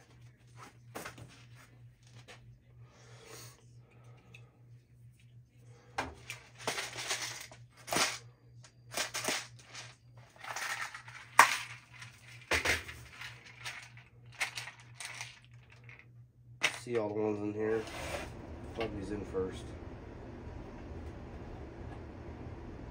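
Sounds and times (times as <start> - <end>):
small parts rattling: 6.2 - 8.2, 8.9 - 17.2.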